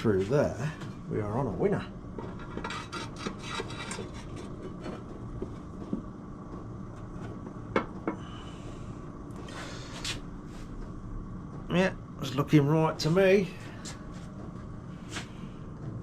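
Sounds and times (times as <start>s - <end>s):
steady low hum: 0.0s - 16.0s
metal scrape: 2.4s - 4.5s.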